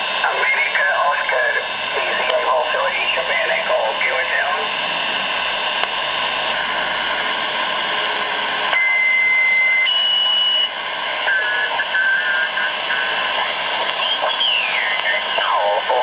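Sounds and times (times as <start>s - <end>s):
radio band noise and hiss: 0.0s - 16.0s
warbling broken radio tone: 0.2s - 16.0s
radio whistle tones: 8.7s - 16.0s.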